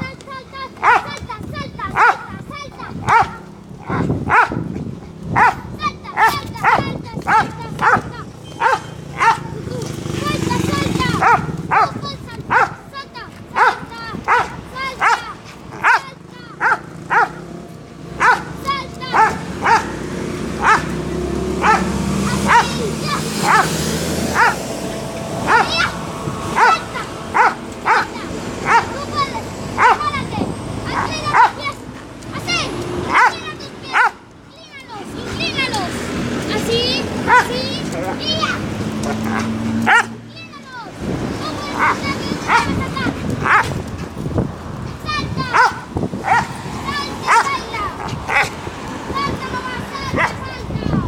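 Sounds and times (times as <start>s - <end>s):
dog barking: 0.8s - 1.2s, 1.9s - 4.7s, 5.3s - 9.7s, 11.1s - 17.4s, 18.2s - 20.0s, 20.6s - 21.0s, 21.6s - 23.7s, 24.3s - 24.7s, 25.4s - 30.2s, 30.9s - 31.8s, 33.1s - 34.2s, 37.2s - 40.2s, 41.8s - 42.8s, 43.4s - 43.7s, 45.4s - 46.5s, 47.2s - 48.6s, 50.1s - 50.4s.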